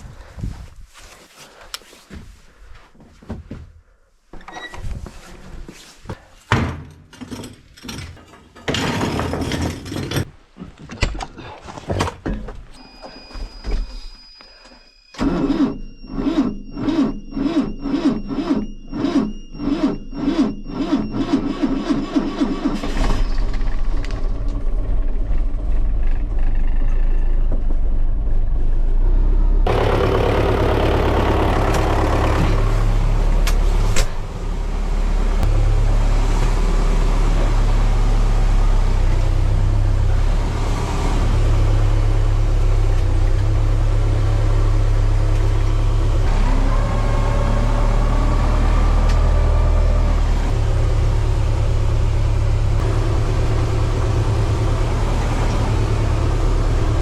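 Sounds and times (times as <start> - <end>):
tractor engine running: 20.4 - 28.8, 29.6 - 57.0.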